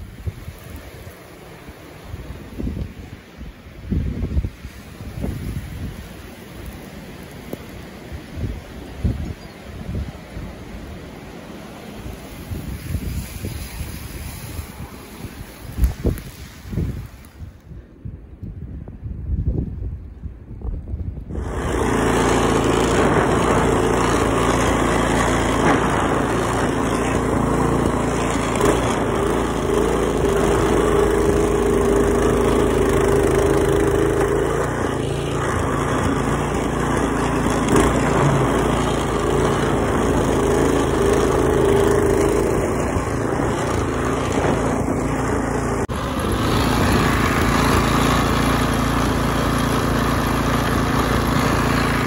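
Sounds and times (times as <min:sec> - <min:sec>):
broad rushing noise: 0:00.0 - 0:17.6, 0:21.3 - 0:52.0
motor running steadily: 0:21.3 - 0:52.0.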